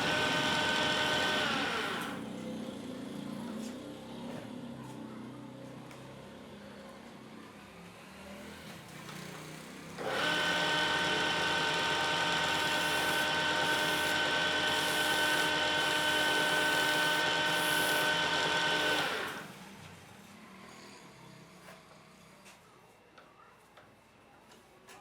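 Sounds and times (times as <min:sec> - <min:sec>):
power tool motor whining: 0:00.0 - 0:02.3, 0:10.0 - 0:19.7.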